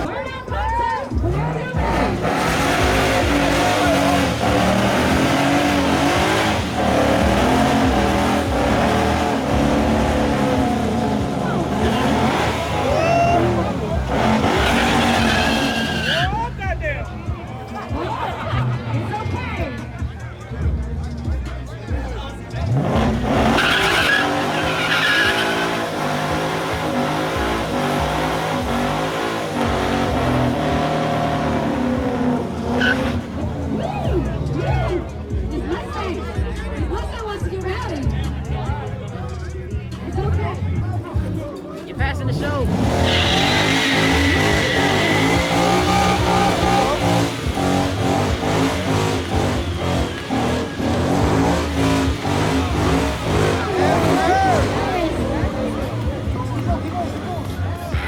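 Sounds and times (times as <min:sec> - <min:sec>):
tyres squealing: 0:00.0 - 0:16.8, 0:22.6 - 0:35.2, 0:42.3 - 0:58.0
car engine revving high: 0:01.0 - 0:17.2, 0:22.4 - 0:36.2, 0:42.0 - 0:58.0.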